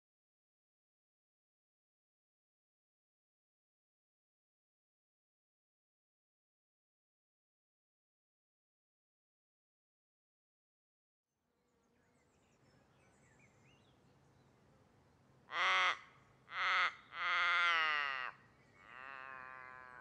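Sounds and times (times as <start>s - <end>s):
distant bird chirps: 11.6s - 20.0s
bird calling loudly: 15.5s - 20.0s.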